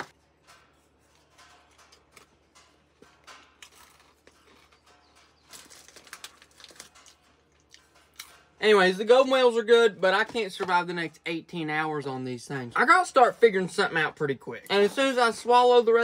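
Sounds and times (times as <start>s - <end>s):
crunching of crackers being chewed: 1.2s - 8.4s.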